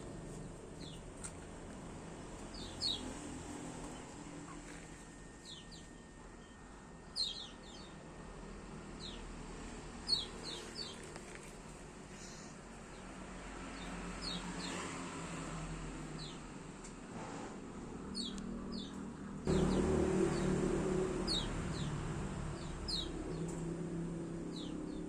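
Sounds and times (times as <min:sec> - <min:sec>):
small bird chirping: 0:02.5 - 0:03.2, 0:05.3 - 0:08.0, 0:10.1 - 0:11.1, 0:22.6 - 0:23.6.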